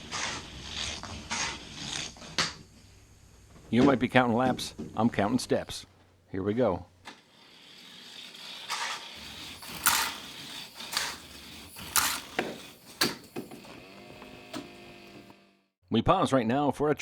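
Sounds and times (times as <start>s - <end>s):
toy car wheels rattling on track: 7.1s - 13.7s
small electric motor whirring: 7.1s - 15.7s.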